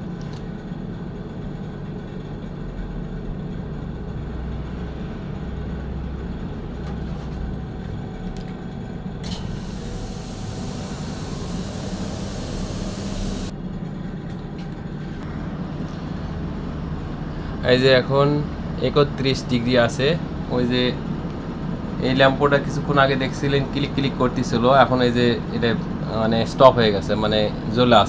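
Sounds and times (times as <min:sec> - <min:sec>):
compressor humming: 0:09.2 - 0:13.5
refrigerant gas hissing: 0:09.2 - 0:13.5.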